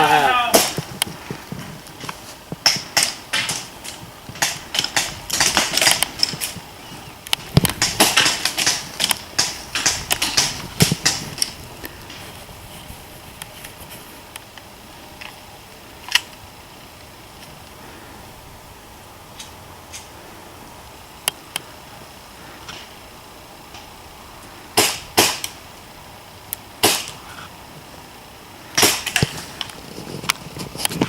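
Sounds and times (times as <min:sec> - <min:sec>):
airsoft guns firing clicks: 0:02.6 - 0:06.6, 0:07.3 - 0:11.6, 0:24.8 - 0:25.6, 0:26.8 - 0:27.2, 0:28.8 - 0:29.4.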